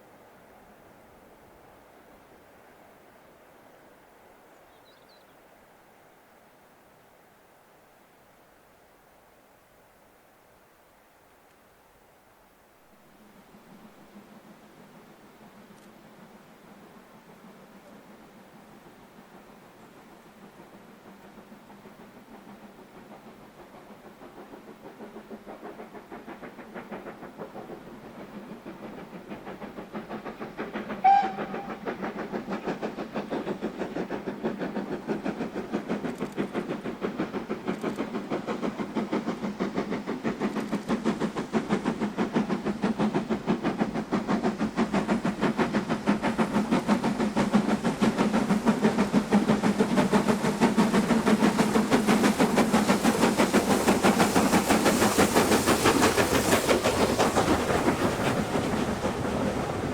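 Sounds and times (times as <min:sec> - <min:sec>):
steam locomotive exhaust beats: 0:11.2 - 0:59.9
steam whistle blast: 0:31.0 - 0:31.8.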